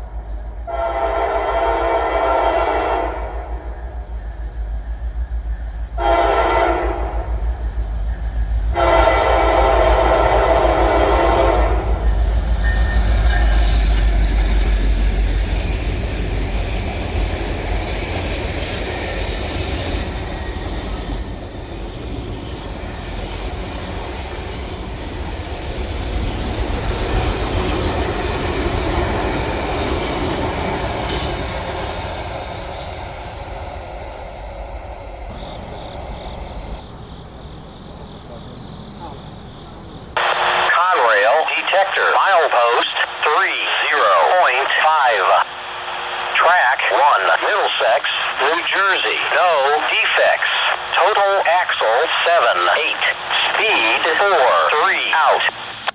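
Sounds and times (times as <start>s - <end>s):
train rumbling past: 0.0s - 40.6s
train horn: 0.7s - 3.8s, 6.0s - 7.4s, 8.7s - 12.0s
wheel squeal: 12.0s - 33.6s.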